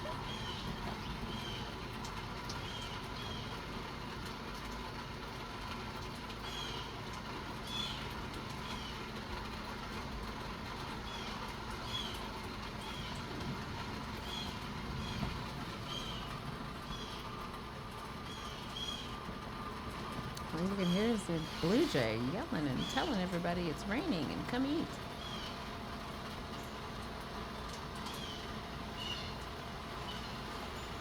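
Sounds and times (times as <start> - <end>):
blue jay calls: 0.0 - 1.8, 14.2 - 17.2, 18.3 - 19.2, 20.6 - 25.6
electric fan: 0.0 - 31.0
light rain hiss: 0.0 - 31.0.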